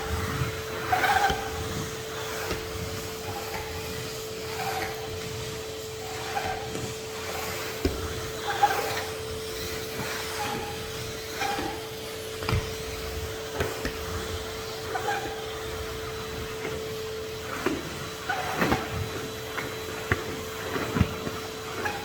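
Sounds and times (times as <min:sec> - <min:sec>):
vacuum cleaner motor whine: 0:00.0 - 0:22.0.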